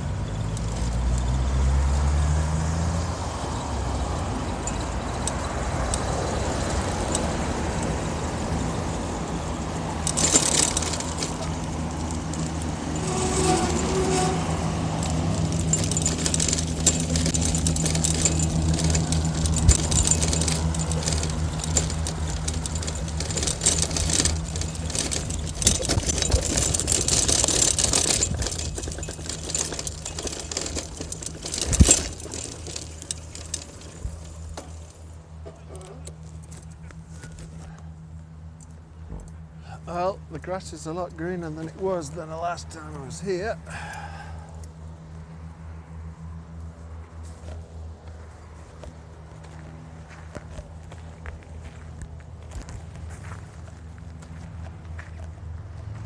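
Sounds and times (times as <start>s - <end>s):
bicycle rattles and clicks: 0.0s - 2.3s, 3.1s - 56.0s
road traffic hum: 0.0s - 56.0s
rushes of traffic noise: 0.0s - 56.0s.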